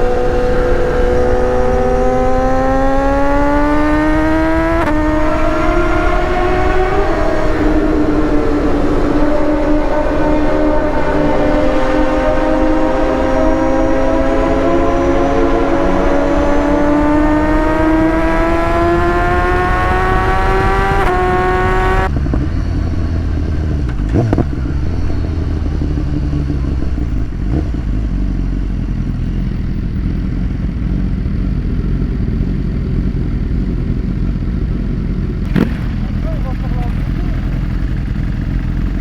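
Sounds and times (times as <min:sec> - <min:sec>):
motorcycle engine accelerating: 0:00.0 - 0:39.0
low steady rumble: 0:22.1 - 0:39.0.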